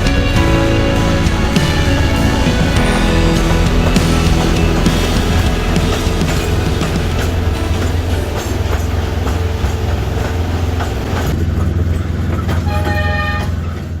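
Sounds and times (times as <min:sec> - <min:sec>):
train rumbling on track: 0:00.0 - 0:14.0
train horn tone: 0:12.6 - 0:13.7.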